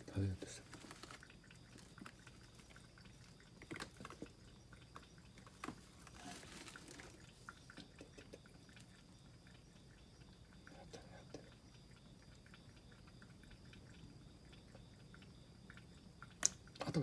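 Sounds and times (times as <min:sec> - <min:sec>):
soft rustle: 0:00.0 - 0:04.3, 0:05.4 - 0:07.8
faint sharp clicks: 0:15.1 - 0:16.9.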